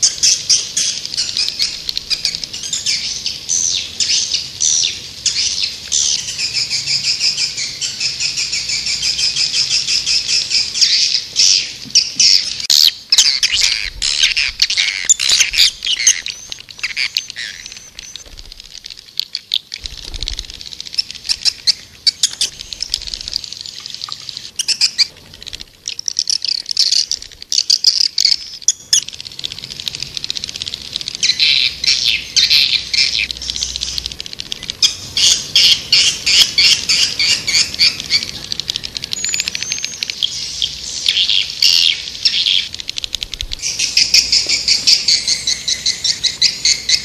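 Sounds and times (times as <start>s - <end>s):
swiftlets twittering: 12.4s - 47.0s.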